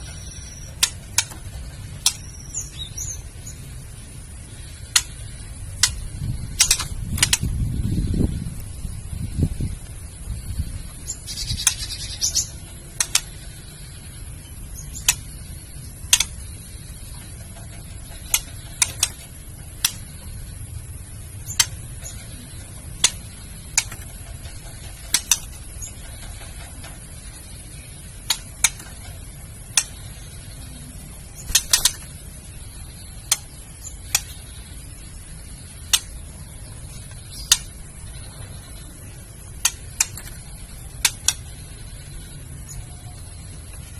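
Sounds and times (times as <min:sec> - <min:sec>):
bird giving sharp clicking calls: 0:00.0 - 0:02.9, 0:04.5 - 0:07.5, 0:11.1 - 0:14.1, 0:14.8 - 0:20.4, 0:21.4 - 0:27.5, 0:28.1 - 0:30.6, 0:31.4 - 0:34.8, 0:35.6 - 0:38.4, 0:39.5 - 0:42.0
steady hiss: 0:00.0 - 0:43.9.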